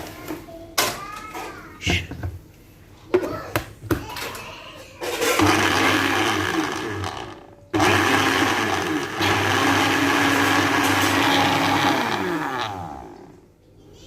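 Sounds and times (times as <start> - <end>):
electric blender motor running: 5.4 - 13.4.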